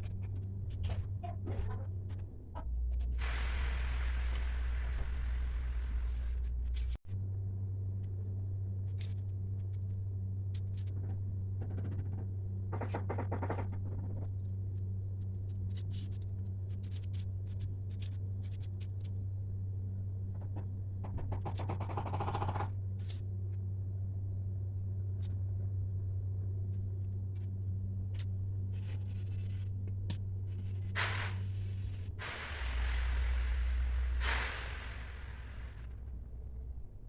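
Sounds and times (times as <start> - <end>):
low electrical hum: 0.0 - 37.0
paper clicks and scrapes: 15.5 - 19.2.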